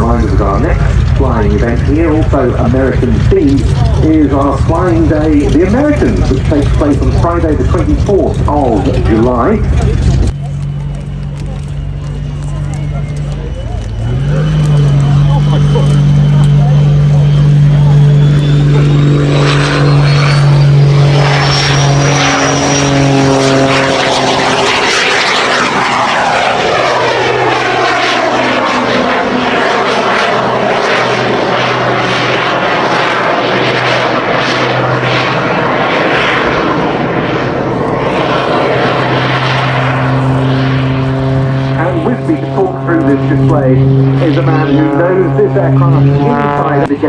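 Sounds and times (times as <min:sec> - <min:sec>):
aircraft piston engines passing: 0:00.0 - 0:47.0.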